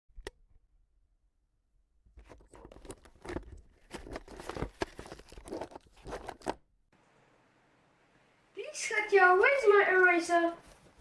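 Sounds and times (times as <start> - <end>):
rustling and crinkling: 2.1 - 6.6, 8.8 - 11.0.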